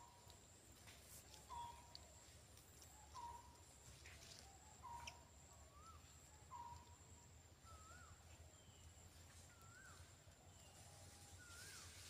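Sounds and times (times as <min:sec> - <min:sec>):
slurred bird whistles: 0:07.6 - 0:08.2.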